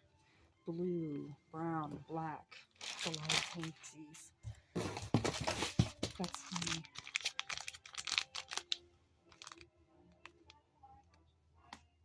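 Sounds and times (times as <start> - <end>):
plastic packaging rustling: 2.7 - 3.9, 4.8 - 9.6.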